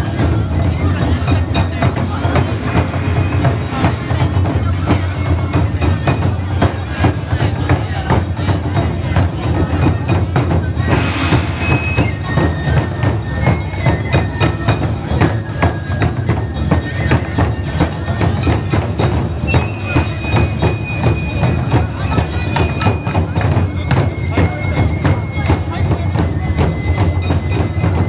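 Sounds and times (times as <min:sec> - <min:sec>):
steady low drum: 0:00.0 - 0:24.8
fast percussion strikes: 0:00.0 - 0:28.0
high held notes: 0:10.5 - 0:13.8.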